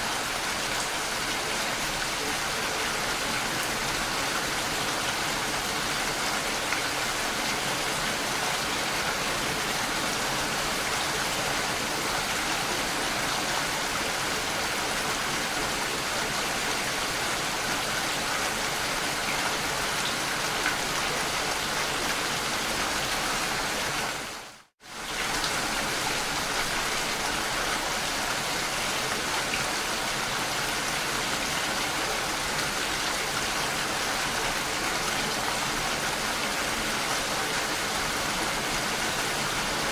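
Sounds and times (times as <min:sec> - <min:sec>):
rain-like water hiss: 0:00.0 - 0:39.9.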